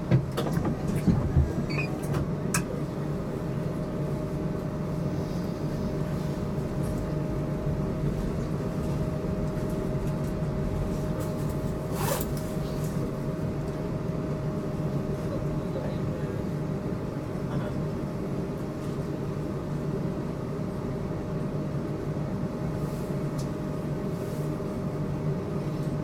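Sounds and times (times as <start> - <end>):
tram wheels rumbling on rail: 0.0 - 15.8.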